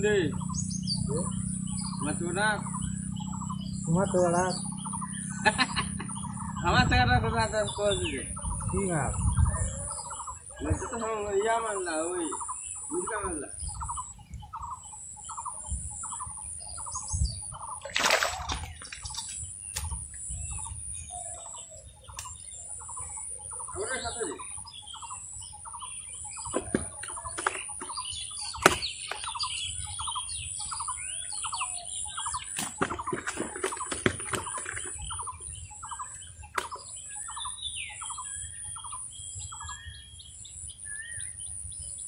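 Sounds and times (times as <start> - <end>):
sharp knocks or splashes: 17.8 - 20.0, 26.5 - 29.3, 32.5 - 35.2.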